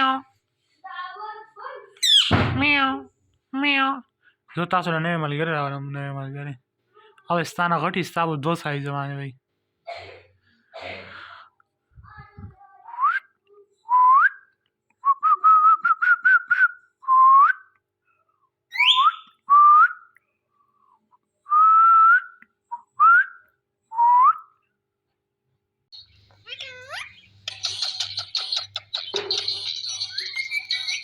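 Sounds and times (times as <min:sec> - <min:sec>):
parakeet whistling: 0:02.0 - 0:02.4, 0:18.7 - 0:19.3, 0:26.0 - 0:31.0.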